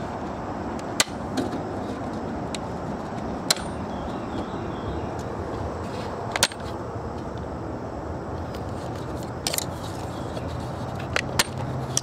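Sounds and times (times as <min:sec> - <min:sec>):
sharp clicks of parts: 0:09.3 - 0:10.1.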